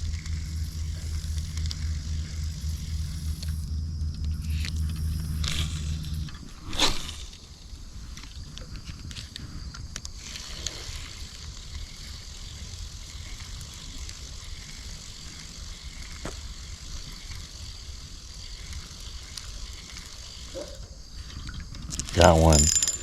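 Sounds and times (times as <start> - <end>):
fishing reel being cranked: 10.2 - 20.5.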